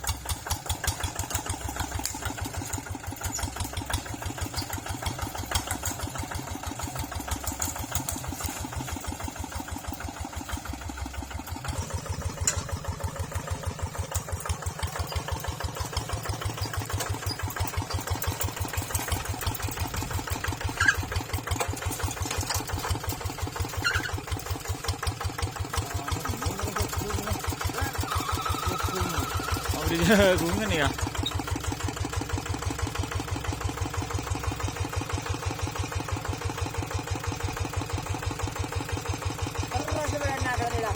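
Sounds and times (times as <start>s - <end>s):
tractor engine chugging: 0.0s - 40.9s.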